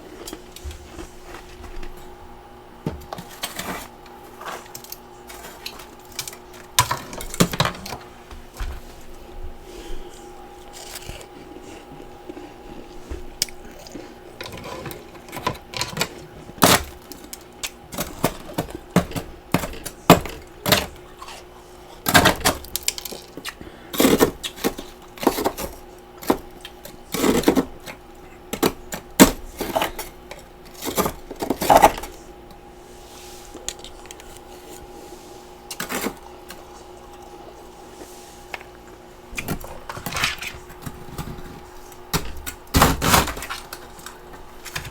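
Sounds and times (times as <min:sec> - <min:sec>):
faint steady hum: 0:00.0 - 0:44.9
crunching and chewing ice: 0:03.1 - 0:08.0, 0:10.0 - 0:32.2, 0:38.6 - 0:44.9.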